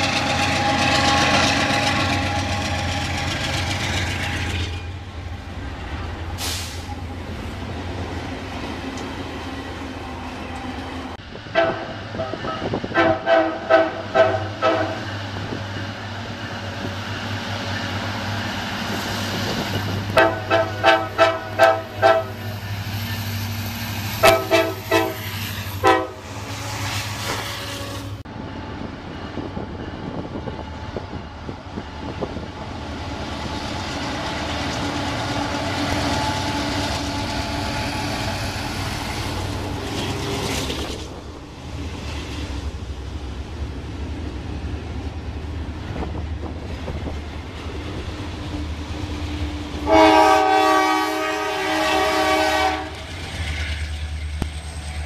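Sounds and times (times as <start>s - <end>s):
train wheels rumbling on rail: 0.0s - 55.0s
train air horn blasts: 11.5s - 15.1s, 20.1s - 22.4s, 24.2s - 28.2s, 49.8s - 53.0s.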